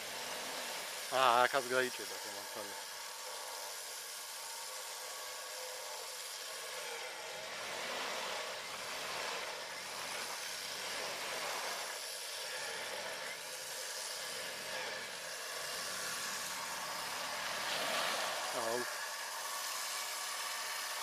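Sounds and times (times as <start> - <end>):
steady hiss: 0.0 - 21.0
car engine running: 6.0 - 21.0.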